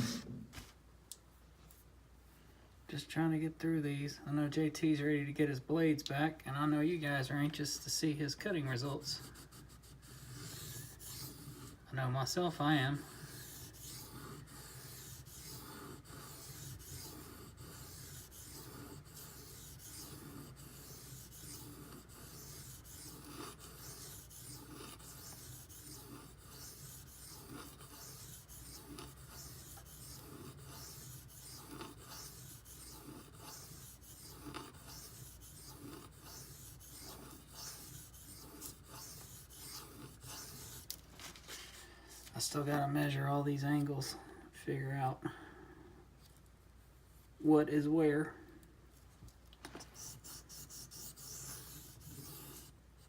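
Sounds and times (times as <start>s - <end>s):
knife rasping on whetstone: 8.8s - 11.8s, 12.5s - 41.0s, 50.0s - 52.8s.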